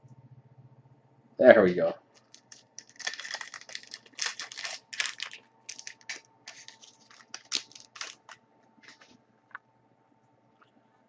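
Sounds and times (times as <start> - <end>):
foil wrapper crinkling and tearing: 2.2 - 9.0
cards sliding and handled: 5.7 - 9.2.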